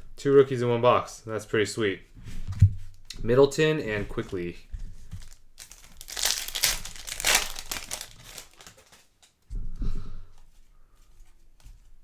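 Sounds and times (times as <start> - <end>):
plastic and foil packaging crinkling: 5.0 - 9.4.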